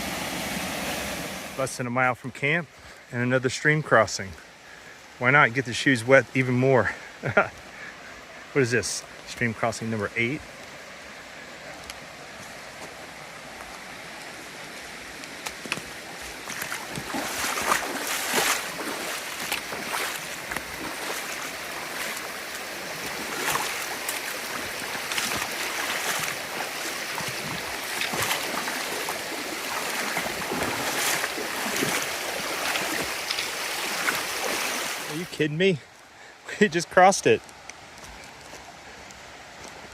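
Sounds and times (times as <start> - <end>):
rushing stream water: 0.0 - 39.9
feet wading through water: 10.3 - 35.3.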